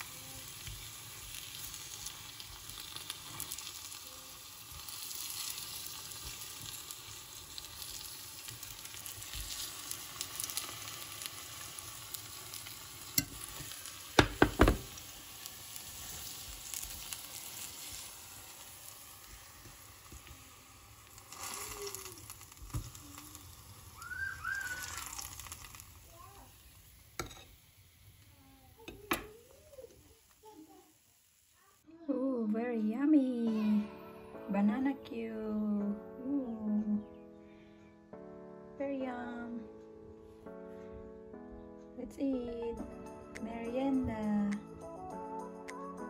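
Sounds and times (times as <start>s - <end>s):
bananas sizzling in syrup: 0.0s - 32.3s.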